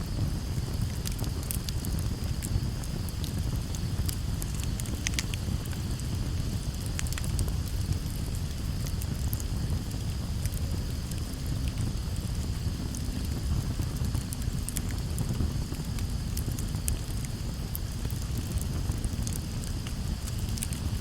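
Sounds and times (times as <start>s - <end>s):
burning wood crackling: 0.0s - 21.0s
campfire low rumble: 0.0s - 21.0s.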